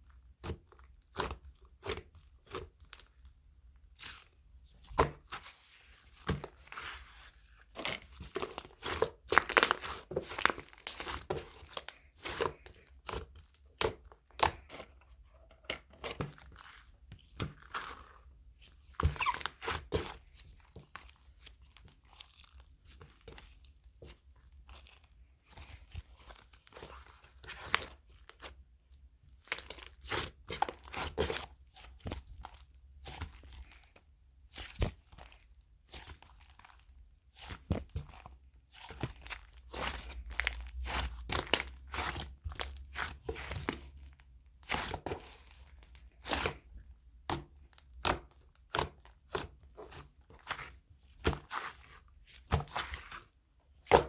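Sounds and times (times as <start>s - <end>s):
slime popping and crackling: 8.0s - 12.7s.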